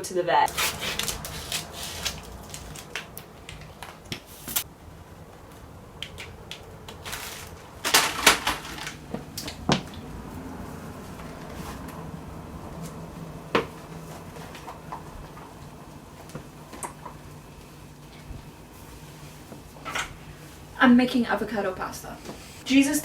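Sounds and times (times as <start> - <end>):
rustling: 0.5 - 4.7, 5.4 - 13.0.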